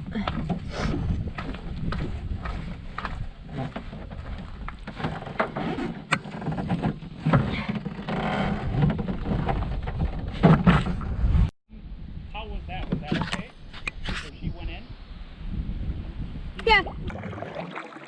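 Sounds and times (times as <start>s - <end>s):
paddle splashing in water: 16.7s - 18.0s.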